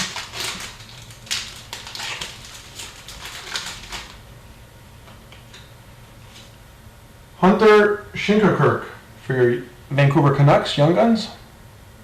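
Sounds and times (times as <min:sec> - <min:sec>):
trading cards flicking and rustling: 0:00.0 - 0:04.2.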